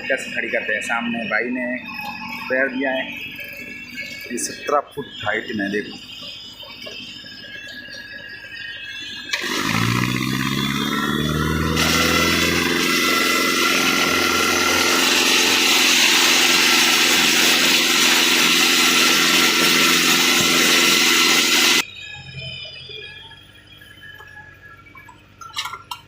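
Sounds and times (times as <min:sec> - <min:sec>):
rock drill rig running: 0:01.8 - 0:21.8.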